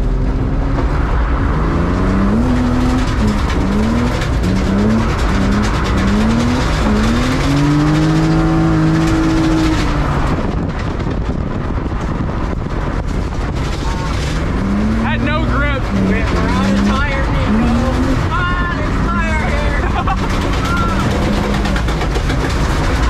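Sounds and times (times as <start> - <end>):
car engine revving hard: 0.0 - 10.7, 13.2 - 23.0.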